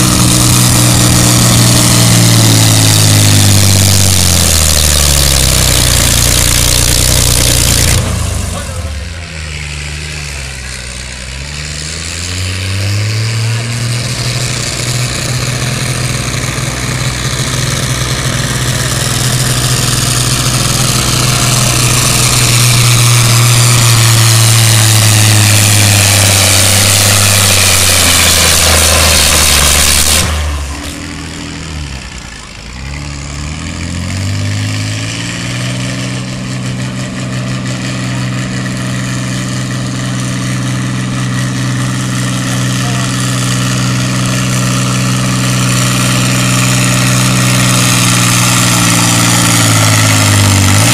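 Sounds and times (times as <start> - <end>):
diesel tractor engine roaring: 0.0 - 50.9.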